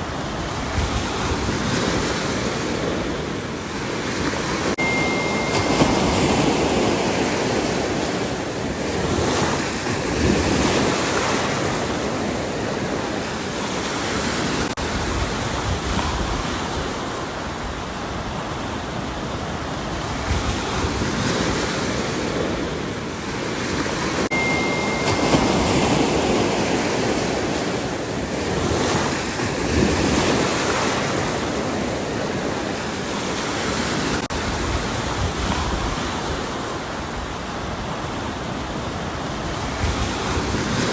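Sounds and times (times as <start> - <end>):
ocean waves breaking: 0.0 - 40.9.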